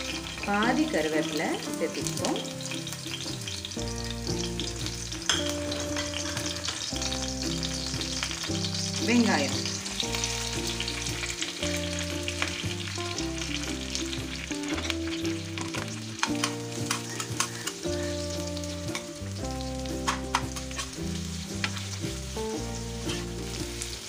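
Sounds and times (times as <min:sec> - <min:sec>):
onions sizzling in oil: 0:00.0 - 0:24.0
metal spatula scraping pan: 0:23.0 - 0:23.6.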